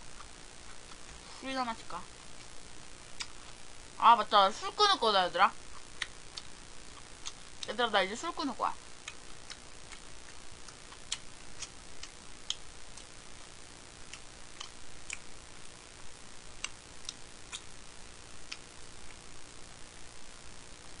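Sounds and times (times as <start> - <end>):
steady hiss: 0.0 - 21.0
mouth and chewing sounds: 0.1 - 1.4, 3.2 - 3.6, 5.7 - 7.7, 9.0 - 15.2, 16.6 - 17.7.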